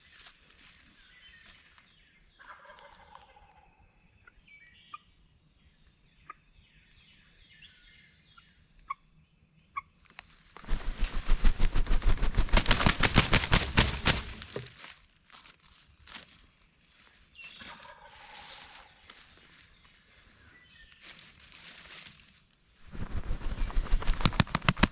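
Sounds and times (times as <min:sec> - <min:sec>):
loud rapid pulsing noise: 0:10.7 - 0:14.4.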